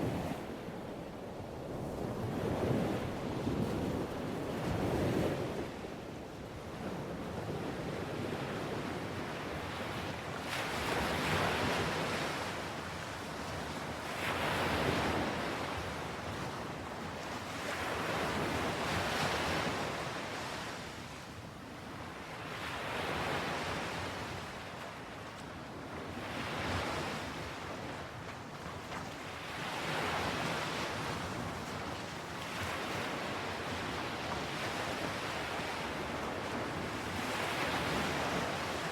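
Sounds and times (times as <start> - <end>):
ocean waves breaking on shore: 0.0 - 38.9.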